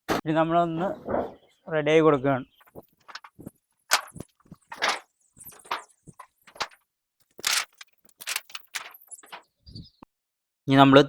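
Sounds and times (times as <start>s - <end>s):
rustles and scrapes of handling: 2.8s - 6.8s, 7.4s - 9.5s.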